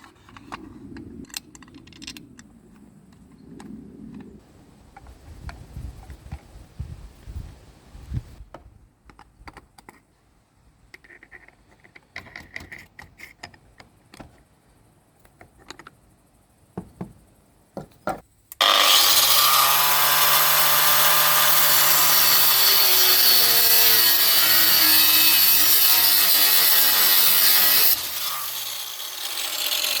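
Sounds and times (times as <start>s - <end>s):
angle grinder running: 18.6s - 30.0s.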